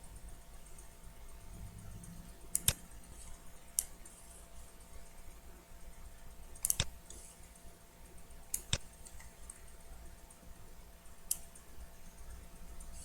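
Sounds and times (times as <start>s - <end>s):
computer mouse button clicking: 6.6s - 6.9s.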